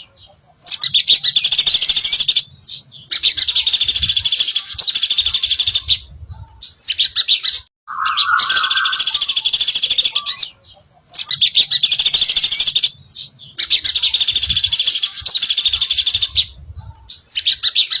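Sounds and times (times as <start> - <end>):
bird fast high chattering: 7.9 - 10.5
low whistle: 7.9 - 10.5.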